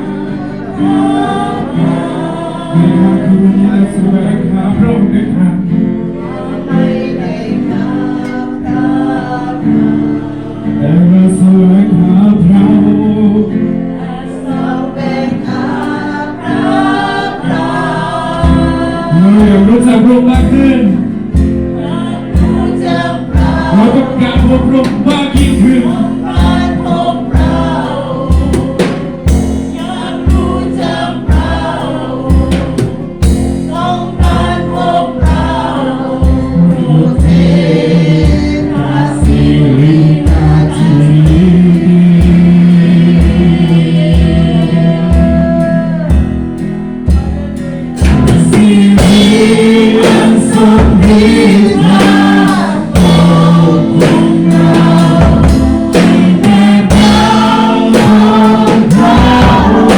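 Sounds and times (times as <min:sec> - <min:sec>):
voices singing worship song: 0:00.0 - 0:59.9
band with steady beat: 0:14.6 - 0:59.9.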